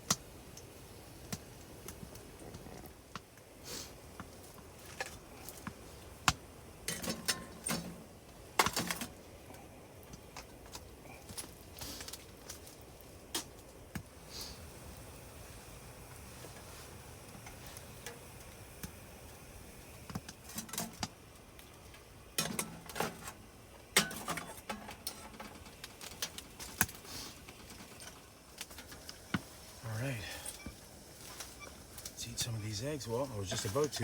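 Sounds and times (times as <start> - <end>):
pans clinking and knocking: 6.9 - 9.1, 22.4 - 26.8.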